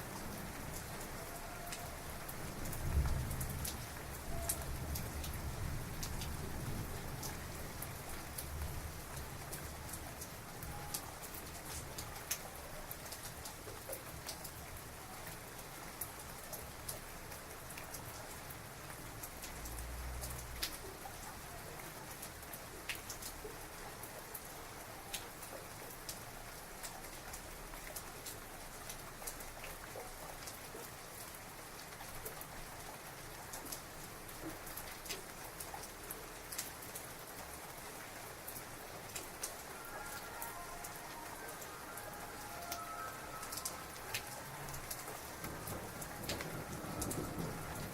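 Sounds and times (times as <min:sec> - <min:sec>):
drips and splashes on a surface: 0:00.0 - 0:47.9
heavy rain falling: 0:00.0 - 0:47.9.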